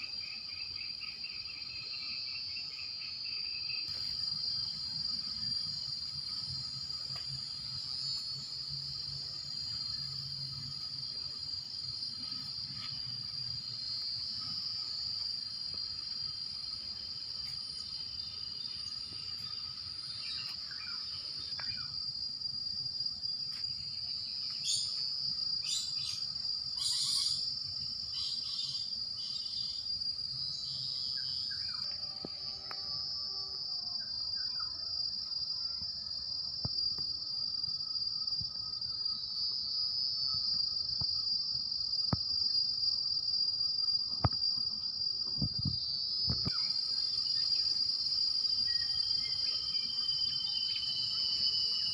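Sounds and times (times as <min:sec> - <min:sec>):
insects shrilling: 0:03.7 - 0:22.8, 0:23.6 - 0:33.9, 0:45.4 - 0:51.9.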